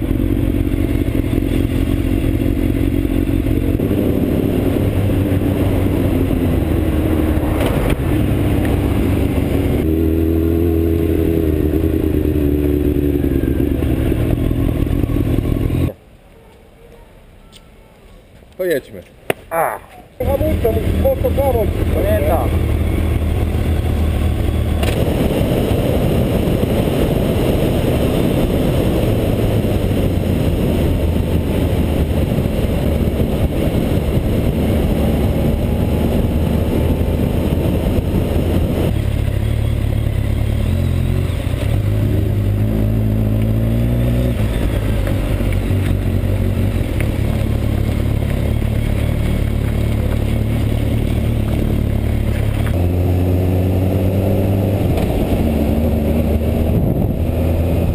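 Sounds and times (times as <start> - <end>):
motorcycle engine running: 0.0 - 16.0, 20.2 - 57.9
heavy rush of noise: 3.2 - 15.6.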